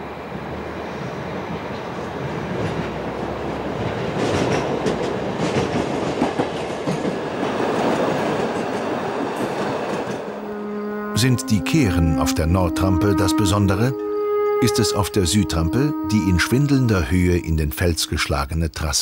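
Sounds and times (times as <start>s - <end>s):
train wheels rumbling and clattering: 0.0s - 10.4s.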